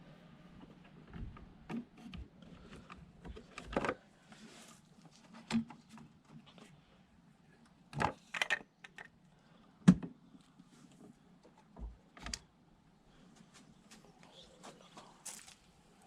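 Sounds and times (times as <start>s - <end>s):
plastic parts clicking and knocking: 1.1s - 4.0s, 7.9s - 9.2s.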